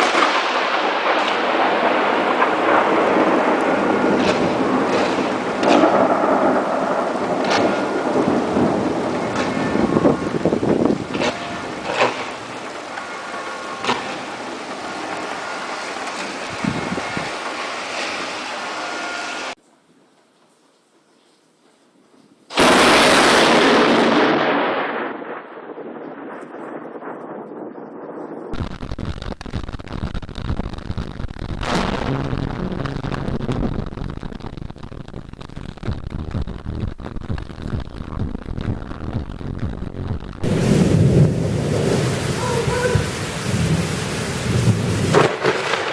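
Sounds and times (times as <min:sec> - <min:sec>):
low thunder rumble: 0:00.0 - 0:17.5, 0:22.6 - 0:45.9
thunder cracks: 0:00.0 - 0:18.2, 0:22.5 - 0:34.5, 0:40.4 - 0:45.9
heavy rain hissing: 0:00.0 - 0:19.6, 0:40.4 - 0:45.9.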